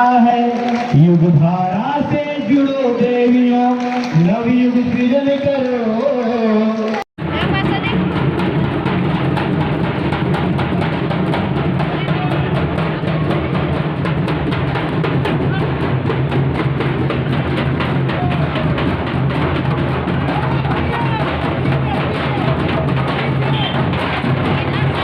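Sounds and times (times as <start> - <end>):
music with fast drumming: 7.2 - 25.0.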